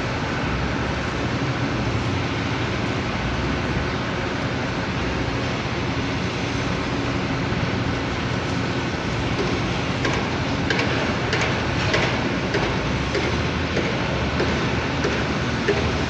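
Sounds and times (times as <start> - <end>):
workshop rumble: 0.0 - 16.0
tools clicking and tapping: 9.4 - 15.9.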